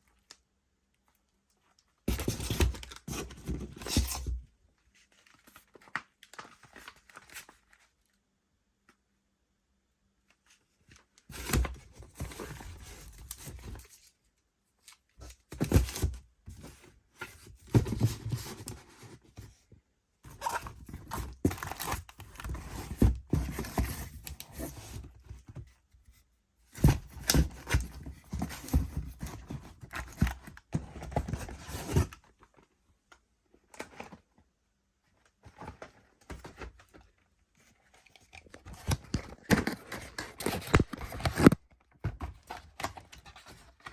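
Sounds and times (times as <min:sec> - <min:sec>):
packaging rustling and crinkling: 0:20.3 - 0:25.5, 0:35.4 - 0:43.9.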